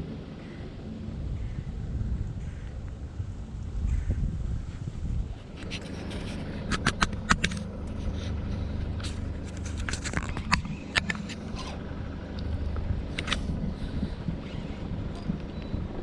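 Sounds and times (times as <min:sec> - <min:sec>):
wind rumble on microphone: 0:00.0 - 0:16.0
sharp clicks and knocks: 0:05.6 - 0:11.8.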